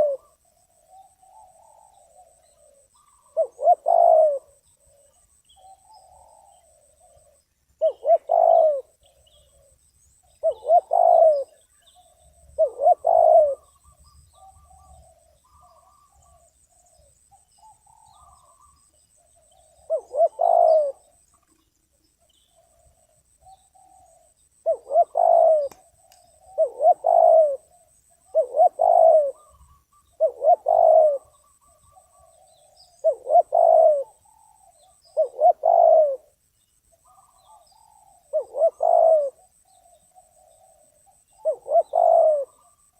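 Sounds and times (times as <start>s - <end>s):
dove cooing: 0.0s - 21.6s, 22.4s - 36.4s, 37.0s - 42.9s.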